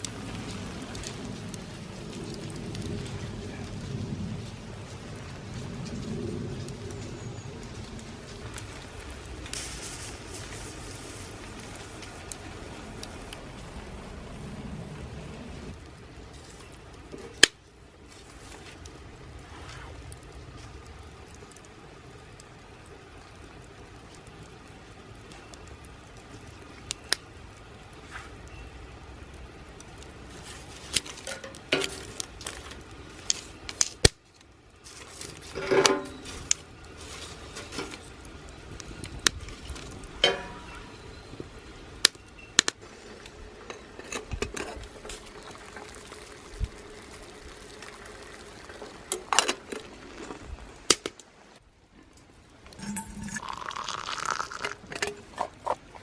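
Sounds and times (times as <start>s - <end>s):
low fire rumble: 0.0s - 56.0s
wood fire crackling: 0.0s - 56.0s
metal cookware clinking: 35.6s - 36.3s, 40.2s - 40.9s, 52.8s - 53.9s.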